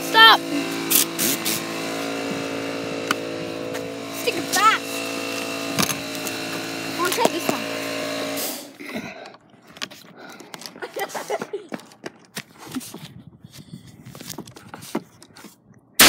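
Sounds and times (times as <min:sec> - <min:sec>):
air compressor motor humming: 0:00.0 - 0:08.8.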